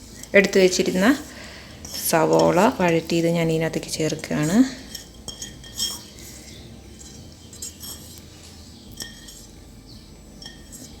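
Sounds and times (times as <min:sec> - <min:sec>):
spoon clinking against a dish: 0:00.1 - 0:11.0.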